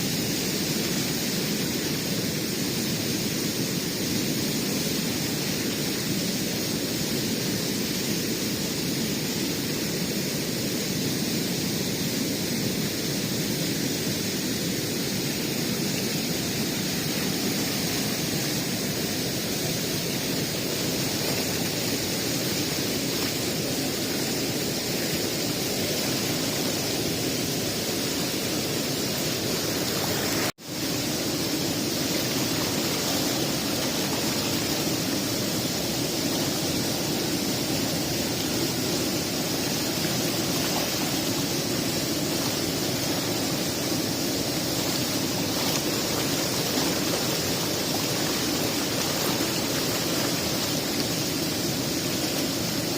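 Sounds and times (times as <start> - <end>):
steady rushing noise: 12.9 - 52.9.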